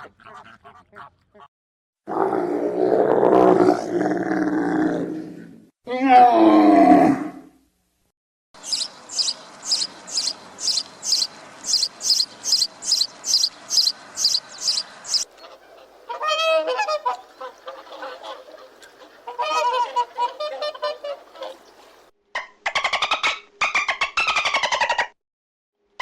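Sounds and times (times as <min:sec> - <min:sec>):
high bird chirps: 0:08.6 - 0:15.6
wavering honk-like calls: 0:08.7 - 0:21.7.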